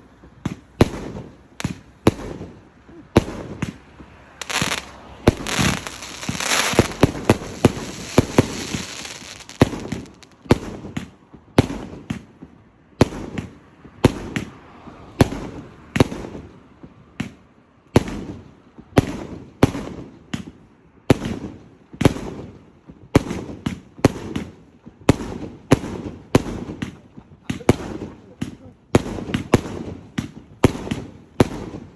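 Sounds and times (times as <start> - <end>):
fireworks crackling: 0.2 - 12.4, 23.2 - 31.9
fireworks bangs: 0.3 - 14.5, 18.0 - 31.9.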